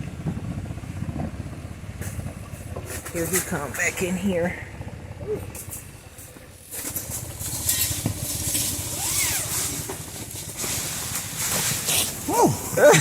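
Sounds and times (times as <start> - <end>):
blizzard wind gusting: 0.0 - 5.3
wind buffeting microphone: 0.0 - 6.2.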